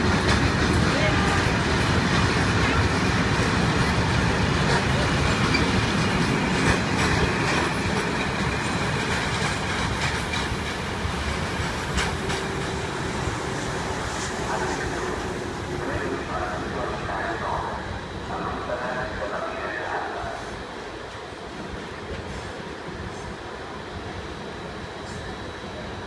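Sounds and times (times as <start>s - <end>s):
train wheels rolling over rails: 0.0s - 17.7s
rail clicks: 0.0s - 20.4s.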